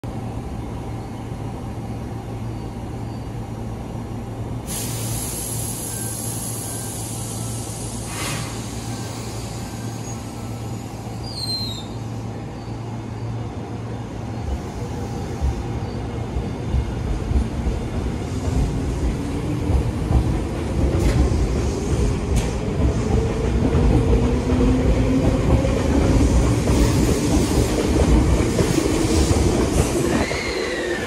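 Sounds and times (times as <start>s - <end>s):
train moving off with rumble: 0.1s - 31.0s
compressed air hissing: 4.7s - 10.4s.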